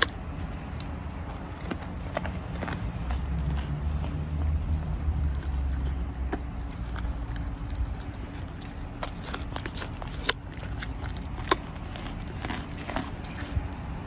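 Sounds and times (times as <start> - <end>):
animal crunching carrots: 0.0 - 14.0.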